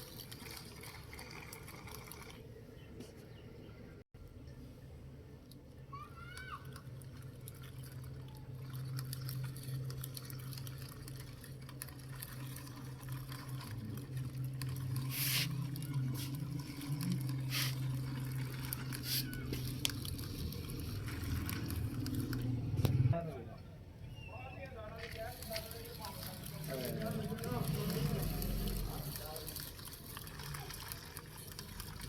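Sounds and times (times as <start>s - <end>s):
toy electric motor humming: 0.0s - 2.4s, 6.0s - 23.0s, 25.0s - 32.0s
sharp clicks and rattles: 6.3s - 23.2s, 25.0s - 32.0s.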